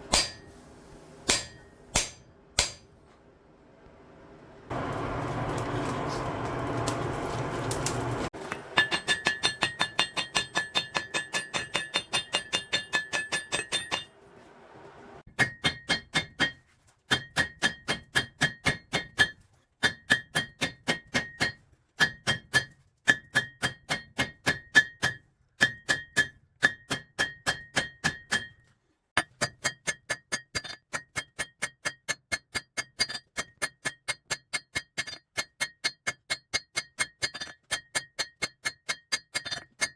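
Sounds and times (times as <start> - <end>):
hammer ringing on anvil: 0.0 - 0.5, 1.2 - 2.9, 8.7 - 14.1.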